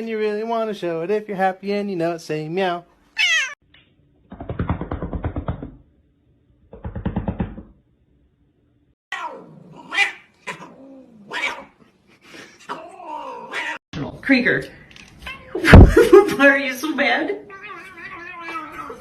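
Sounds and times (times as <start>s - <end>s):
cat yowling: 3.2s - 3.6s, 9.1s - 11.8s, 12.7s - 13.8s, 17.4s - 19.0s
cat growling: 9.1s - 11.9s, 12.6s - 13.8s, 17.4s - 19.0s.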